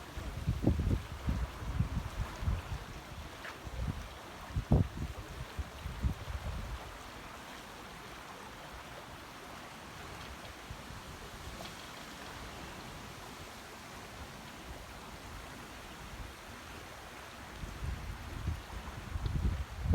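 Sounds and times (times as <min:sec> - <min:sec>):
flowing spring water: 0:00.0 - 0:19.9
wind buffeting microphone: 0:00.2 - 0:06.9, 0:17.6 - 0:19.9.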